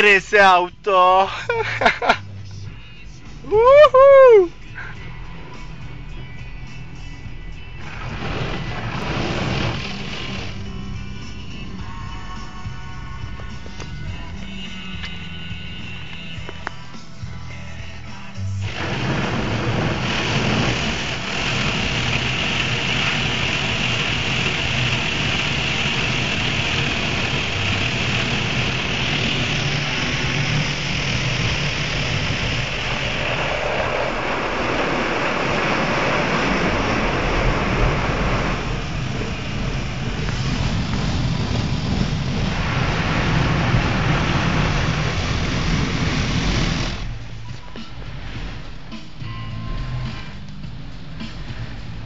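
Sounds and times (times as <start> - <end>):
car wash spraying water: 0.0 - 16.6, 17.4 - 52.0.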